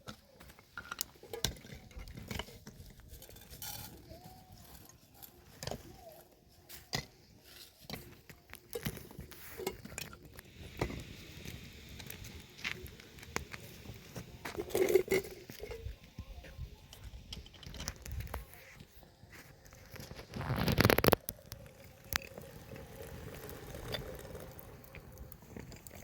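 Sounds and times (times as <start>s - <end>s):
objects knocking and clattering: 0.0s - 4.2s.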